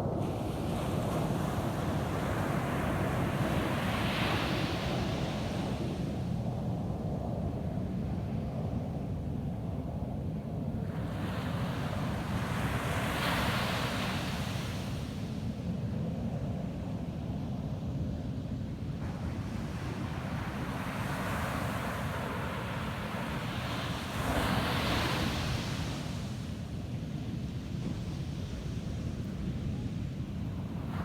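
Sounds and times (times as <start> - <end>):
waves breaking on beach: 19.1 - 26.5.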